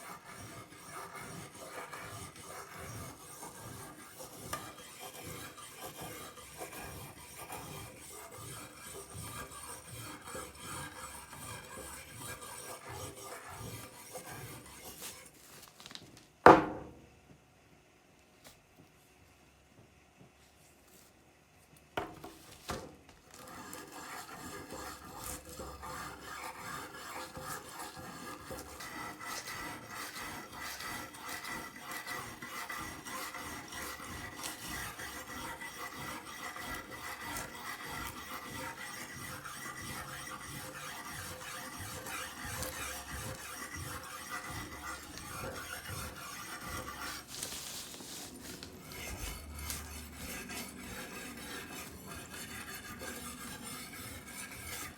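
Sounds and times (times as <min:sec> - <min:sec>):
scraping rust off blade: 0:23.4 - 0:54.9.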